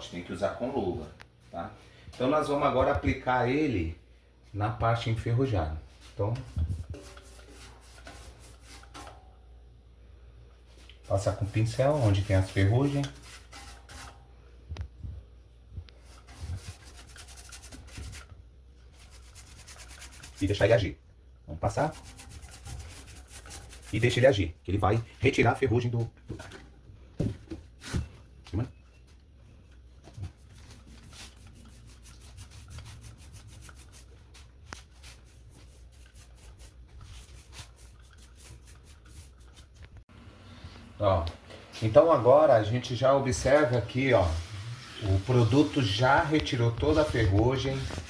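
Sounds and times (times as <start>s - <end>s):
brush bristles scrubbing metal: 6.4s - 9.2s, 11.0s - 14.2s, 16.0s - 18.3s, 18.9s - 20.8s, 21.6s - 24.5s, 30.3s - 39.8s.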